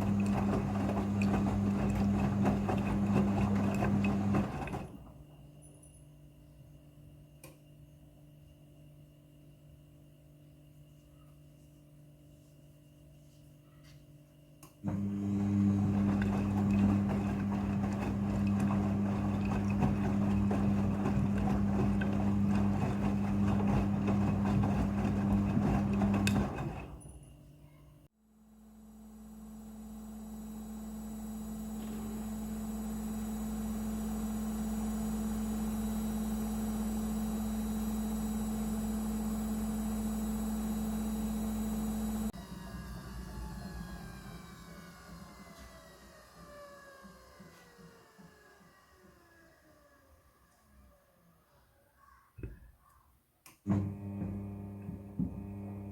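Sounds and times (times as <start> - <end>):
washing machine motor whine: 0.0 - 5.3, 14.8 - 27.2, 28.4 - 51.1, 53.7 - 55.9
washing machine hum: 0.0 - 5.6, 14.8 - 27.8, 28.4 - 50.4, 53.6 - 55.9.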